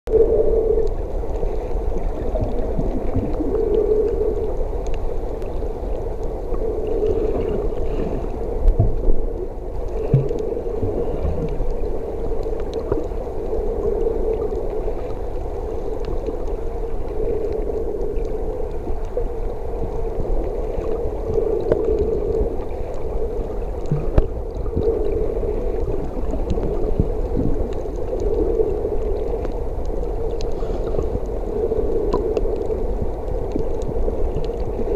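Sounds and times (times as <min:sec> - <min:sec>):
underwater hum and rumble: 0:00.1 - 0:34.9.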